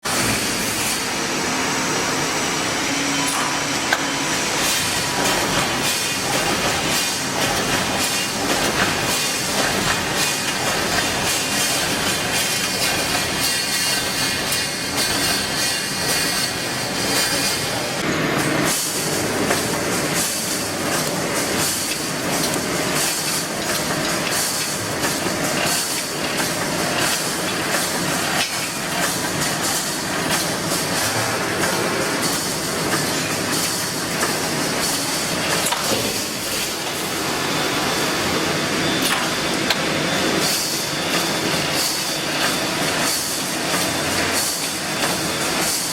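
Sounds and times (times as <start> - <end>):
welding machine clattering: 3.2 - 37.3.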